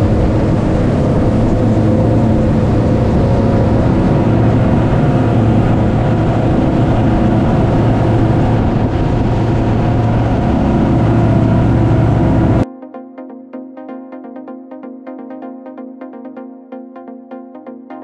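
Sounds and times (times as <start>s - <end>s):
outboard engines running: 0.0s - 12.6s
rushing water noise: 0.0s - 12.6s
music: 0.0s - 18.0s.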